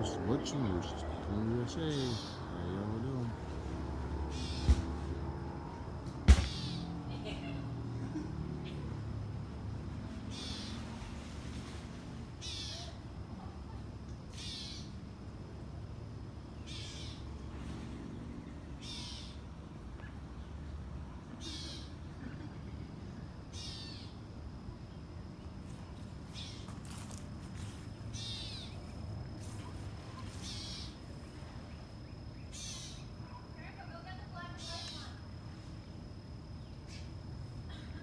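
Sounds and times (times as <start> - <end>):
bird harsh high call: 12.4 - 13.0, 14.4 - 14.9, 18.8 - 19.4, 30.4 - 31.0.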